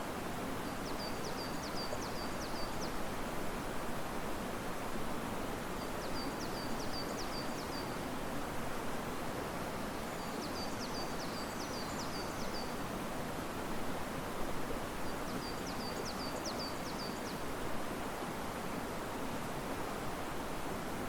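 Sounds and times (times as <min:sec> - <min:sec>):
river water rushing: 0:12.7 - 0:21.0.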